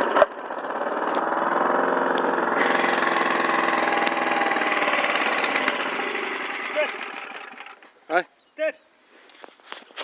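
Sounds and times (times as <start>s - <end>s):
lawn mower engine running: 0.0s - 8.0s.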